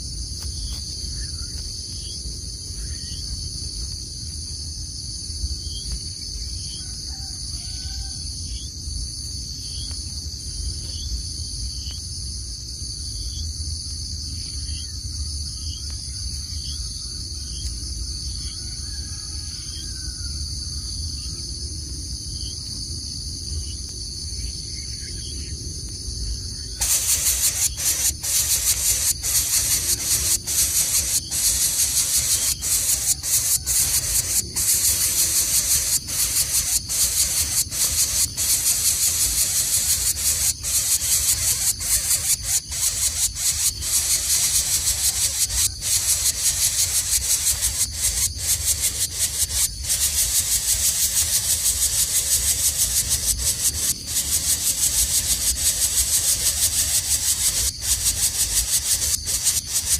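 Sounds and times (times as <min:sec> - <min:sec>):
high-pitched insect chorus: 0:00.0 - 0:59.9
harsh rasping buzz: 0:26.8 - 0:52.2.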